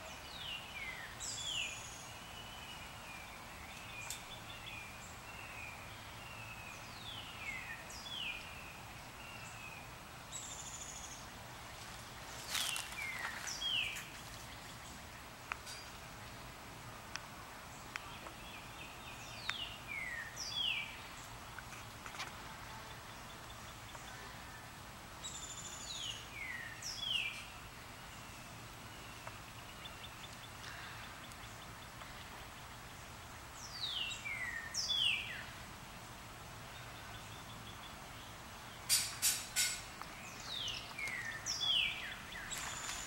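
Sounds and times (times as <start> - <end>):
songbird singing: 0.0 - 43.0.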